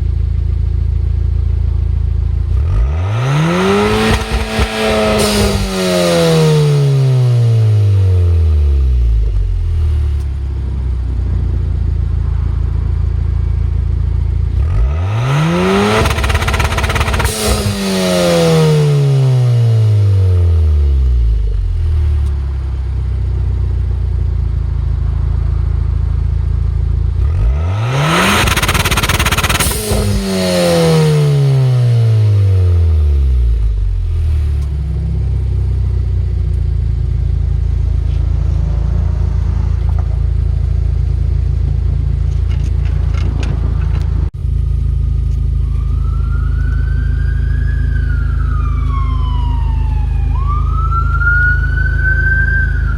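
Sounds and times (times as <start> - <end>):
car exhaust idling and revving: 0.0 - 52.9
exhaust crackles: 9.1 - 20.6, 21.2 - 52.9
siren rising and falling: 45.5 - 52.9.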